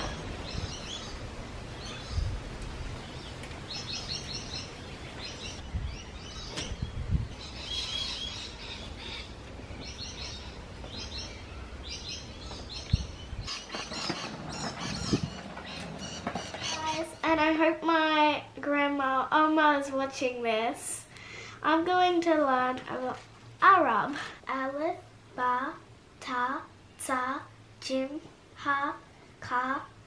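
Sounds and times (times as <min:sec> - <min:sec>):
birds chirping: 0:00.0 - 0:17.7.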